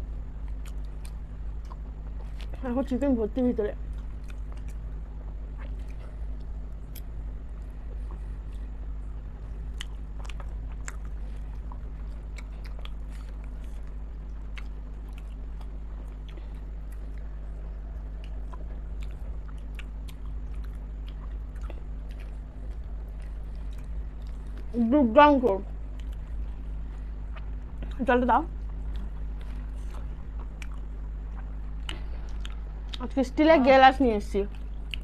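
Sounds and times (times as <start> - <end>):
steady low hum: 0.0 - 35.0
person chewing food: 0.2 - 2.6, 3.8 - 24.8, 25.7 - 33.1, 34.5 - 35.0
wet mouth clicks: 34.5 - 35.0.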